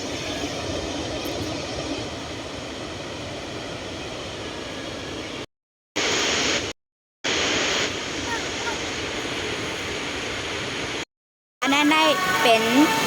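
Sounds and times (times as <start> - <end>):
waterfall rushing: 7.3 - 11.0, 11.7 - 13.0.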